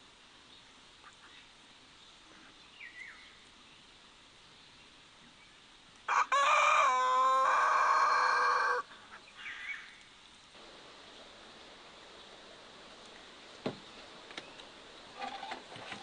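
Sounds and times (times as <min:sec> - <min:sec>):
rooster crowing: 0:06.1 - 0:08.9.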